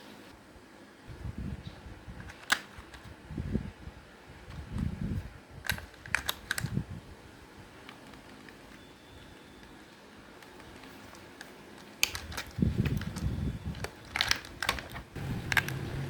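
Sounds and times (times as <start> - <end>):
plastic clicks: 2.2 - 3.1, 5.6 - 6.8, 10.4 - 15.9.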